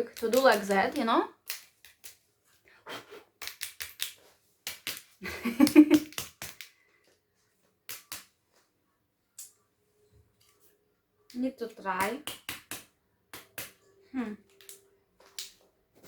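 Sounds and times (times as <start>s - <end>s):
small plastic clicks: 0.0s - 2.2s.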